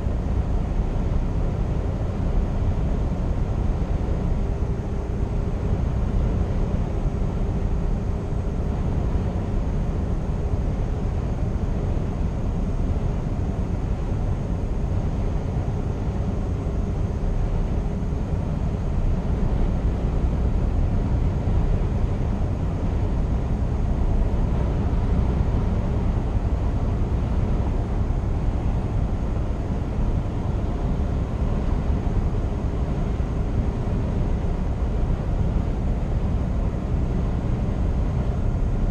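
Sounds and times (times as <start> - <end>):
faint steady whine: 0.0 - 38.9.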